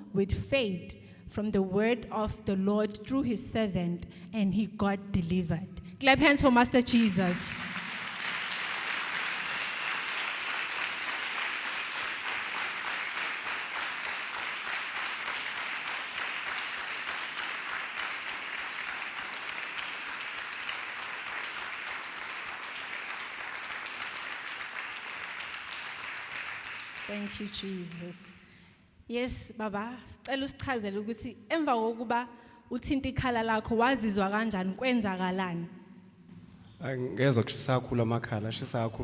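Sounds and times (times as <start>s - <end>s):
crowd applauding: 7.0s - 28.0s.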